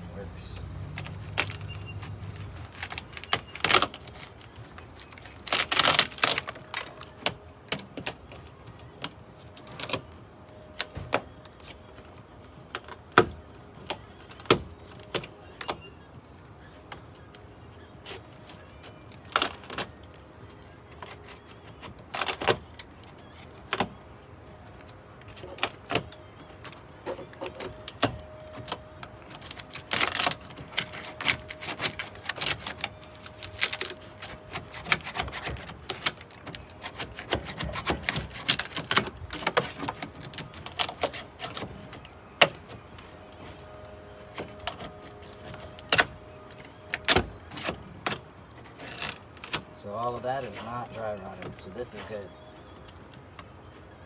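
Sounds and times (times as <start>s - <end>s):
hands tapping and scraping plywood: 25.3s - 43.8s.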